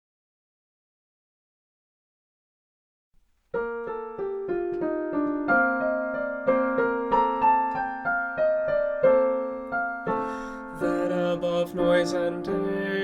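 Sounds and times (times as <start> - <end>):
slow solo piano melody: 3.5 - 13.0.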